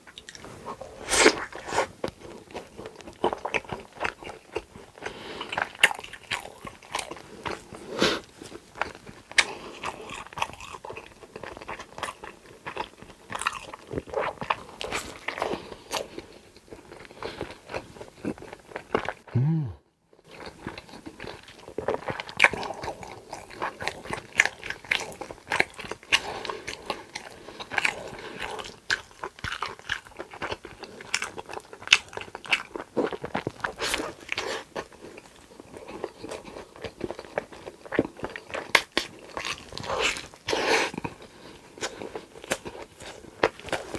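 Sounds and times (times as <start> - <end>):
crunchy bites and chewing: 0.1 - 19.2, 20.3 - 43.9
mouth sounds: 19.2 - 19.9.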